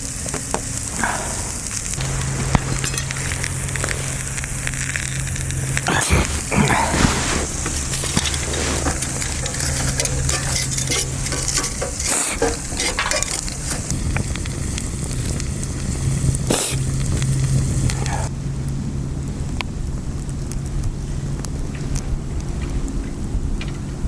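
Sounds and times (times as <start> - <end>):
food sizzling in a pot: 0.0 - 18.3
steady low hum: 0.0 - 24.0
utensil scraping and clinking pot: 2.0 - 14.0.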